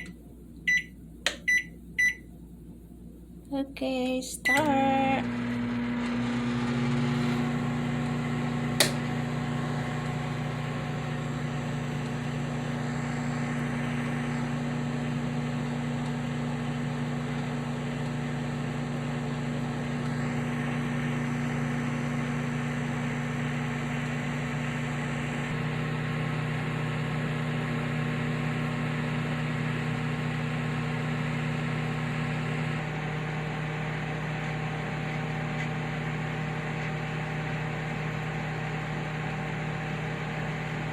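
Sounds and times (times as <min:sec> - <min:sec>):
microwave oven humming: 0:00.0 - 0:40.9.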